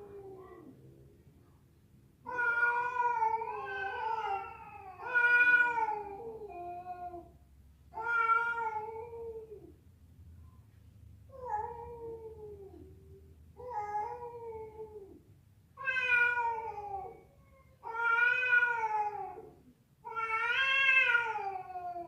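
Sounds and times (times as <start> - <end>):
cat yowling: 2.3 - 7.0, 15.8 - 17.2, 17.8 - 19.5, 20.1 - 22.0.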